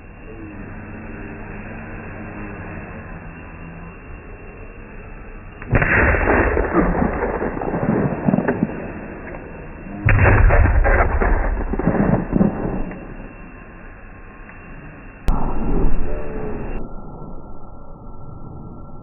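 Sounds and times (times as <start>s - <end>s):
firework crackling and rumble: 0.0s - 16.9s
firework bangs: 5.7s - 13.6s.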